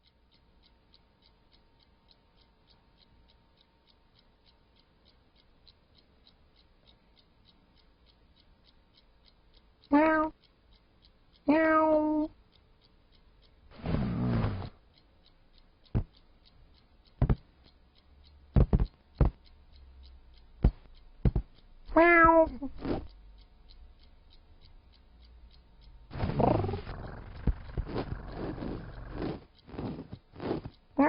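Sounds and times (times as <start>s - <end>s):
faint fast ticking: 0.0s - 31.0s
cat meowing: 9.9s - 10.4s, 11.5s - 12.3s, 21.9s - 22.7s
sharp knocks: 17.2s - 17.4s, 18.6s - 19.4s.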